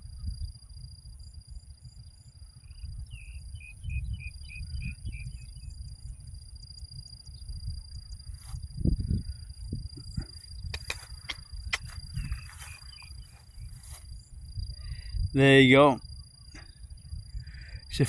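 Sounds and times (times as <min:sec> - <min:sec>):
crickets trilling: 0:00.0 - 0:18.0
wind rumbling on microphone: 0:00.0 - 0:18.0
bird chirping: 0:10.5 - 0:13.8.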